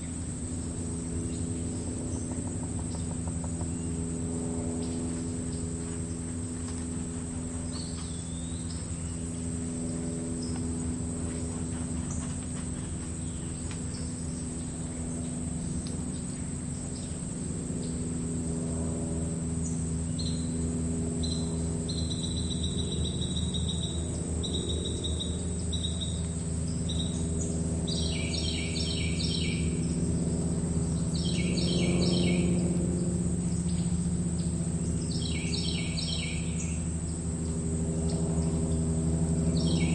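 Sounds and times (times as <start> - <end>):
birds calling: 0.0 - 18.2, 19.6 - 39.9
crickets trilling: 0.0 - 39.9
low steady hum: 0.0 - 39.9.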